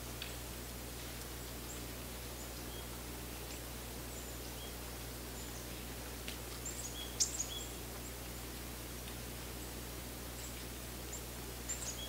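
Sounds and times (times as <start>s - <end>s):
low background hum: 0.0s - 12.0s
small birds chirping: 1.3s - 8.6s, 10.3s - 12.0s.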